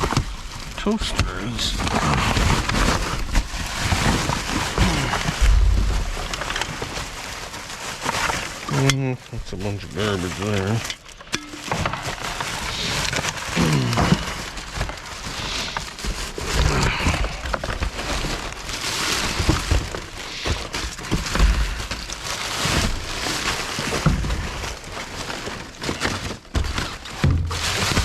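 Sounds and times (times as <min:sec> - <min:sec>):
plastic bags rustling: 0:00.0 - 0:28.0
dull thumps: 0:02.6 - 0:07.3.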